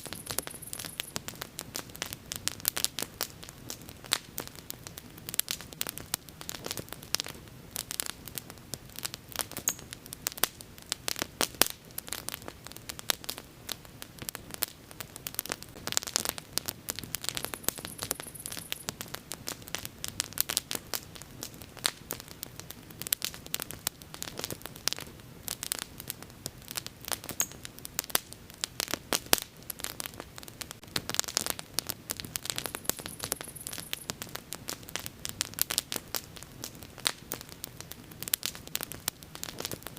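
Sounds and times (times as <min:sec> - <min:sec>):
faint high-pitched sound: 0:00.0 - 0:01.2, 0:17.4 - 0:18.9, 0:32.6 - 0:34.1
bonfire crackling and popping: 0:00.0 - 0:39.9
low rumble of flames: 0:00.0 - 0:39.9.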